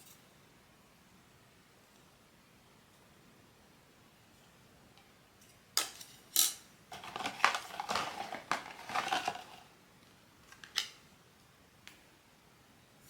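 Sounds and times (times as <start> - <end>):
packaging clattering and rustling: 6.9 - 9.7.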